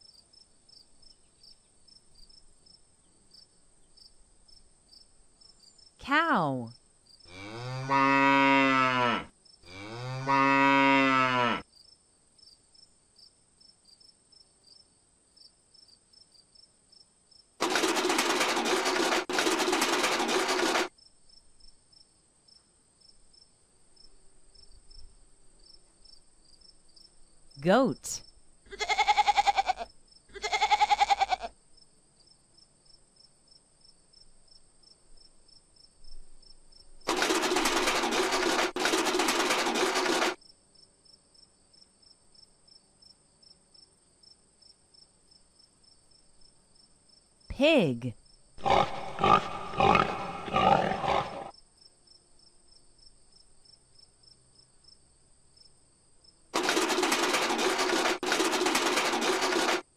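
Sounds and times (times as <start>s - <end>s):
cow mooing: 7.3s - 11.6s, 48.6s - 51.5s
goat bleating: 28.7s - 31.5s
crickets chirping: 40.0s - 47.5s, 48.2s - 56.5s.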